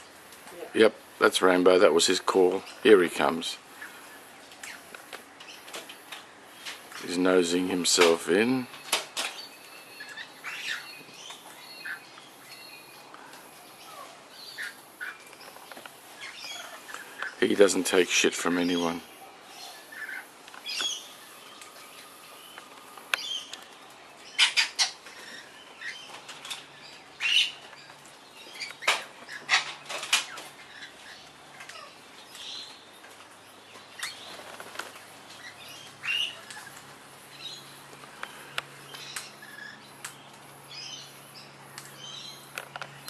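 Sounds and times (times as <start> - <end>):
parrots chirping and squawking: 8.3 - 22.3, 24.2 - 42.7.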